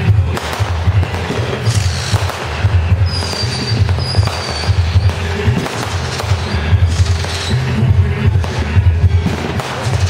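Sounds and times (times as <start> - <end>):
fireworks popping and crackling: 0.0 - 10.0
high thin firework whistle: 3.0 - 7.7.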